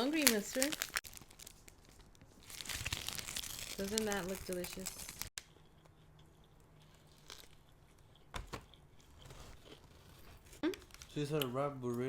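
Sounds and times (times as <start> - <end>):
crisp crunches: 0.0 - 5.3, 6.9 - 7.6
biting and chewing food: 2.4 - 11.5.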